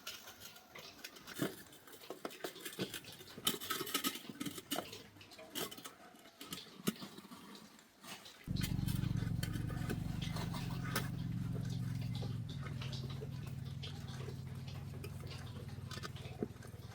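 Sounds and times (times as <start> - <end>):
low machine hum: 8.5 - 16.9.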